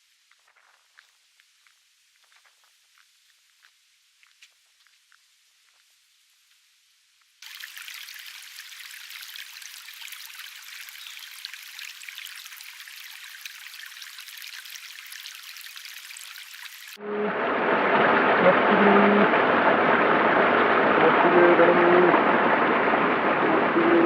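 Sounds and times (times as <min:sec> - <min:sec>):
crackling hiss of water: 0:00.0 - 0:17.0.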